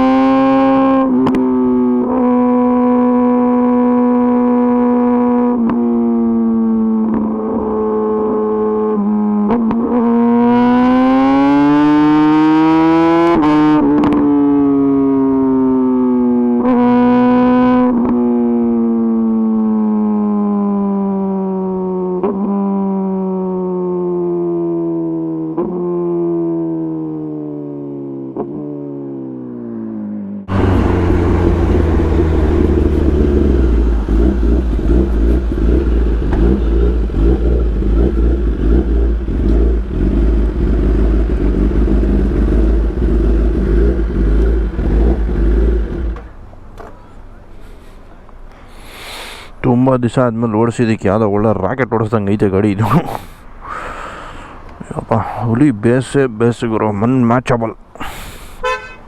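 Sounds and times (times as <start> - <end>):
loud rough noise: 30.5 - 46.3.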